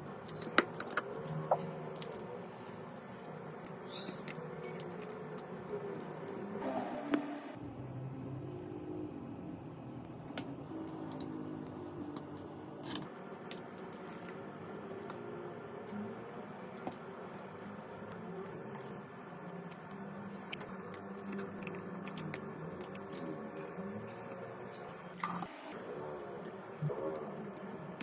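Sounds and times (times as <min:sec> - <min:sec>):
low background hum: 0:00.0 - 0:28.0
small tools clicking and tapping: 0:00.2 - 0:02.2, 0:03.2 - 0:06.4, 0:10.9 - 0:11.4, 0:12.2 - 0:15.2, 0:16.8 - 0:17.8, 0:25.1 - 0:25.5.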